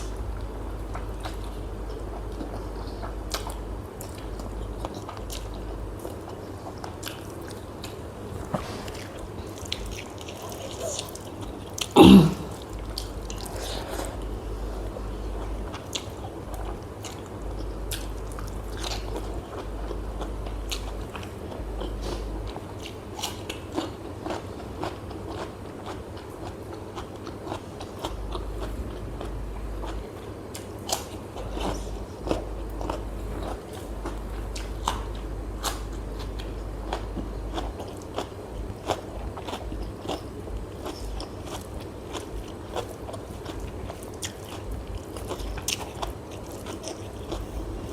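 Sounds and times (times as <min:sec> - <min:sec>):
crunchy biting and chewing: 0:15.2 - 0:47.9.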